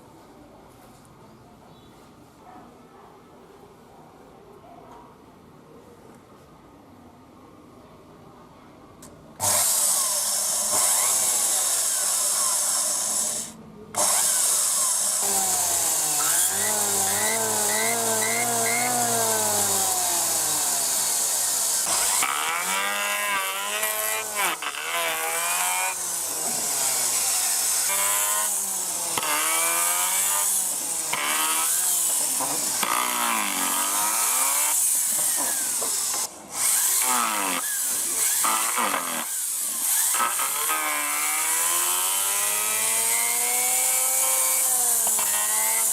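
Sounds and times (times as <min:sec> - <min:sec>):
electric planer cutting wood: 0:09.4 - 0:45.9.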